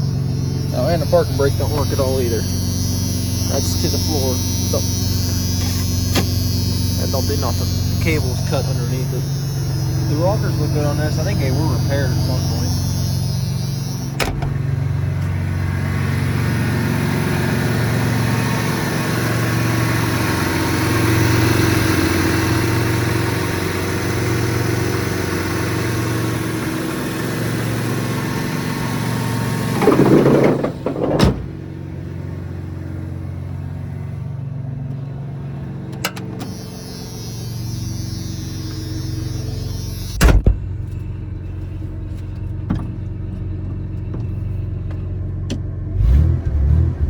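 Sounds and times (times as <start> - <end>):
truck engine idling: 0.0 - 46.9
man talking: 0.7 - 2.5, 3.5 - 5.0, 7.0 - 9.3, 10.0 - 12.8
loud rustle and thump: 29.6 - 31.8.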